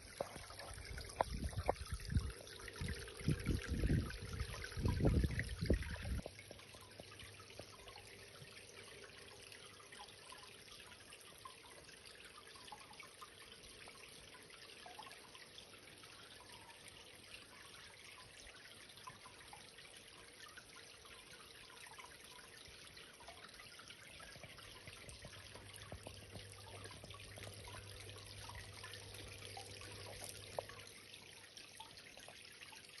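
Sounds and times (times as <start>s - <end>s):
waterfall splashing into pond: 0.0s - 10.2s, 23.0s - 31.1s
water drips: 0.0s - 33.0s.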